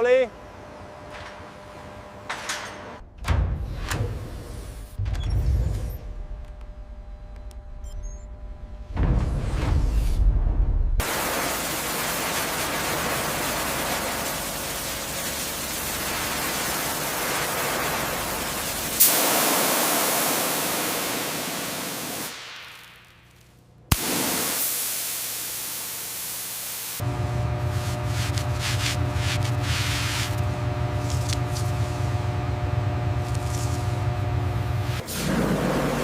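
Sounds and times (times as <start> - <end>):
loud hissing rush: 11.0 - 23.0, 23.9 - 27.1.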